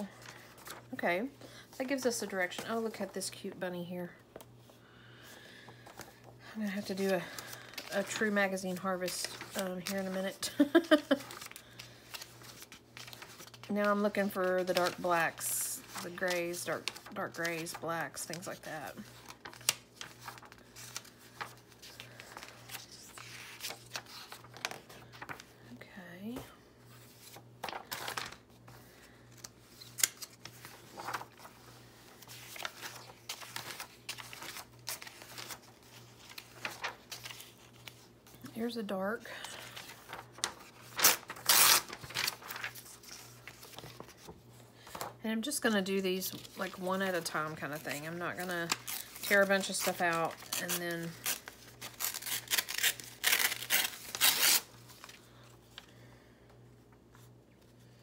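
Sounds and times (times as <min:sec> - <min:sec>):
magazine pages flipping: 0:00.0 - 0:03.4, 0:04.3 - 0:25.6, 0:26.3 - 0:38.5, 0:39.2 - 0:45.2, 0:46.2 - 0:56.0
paper handling ticks: 0:19.0 - 0:25.4, 0:27.3 - 0:28.4, 0:29.4 - 0:31.5, 0:32.2 - 0:38.0, 0:39.9 - 0:44.3.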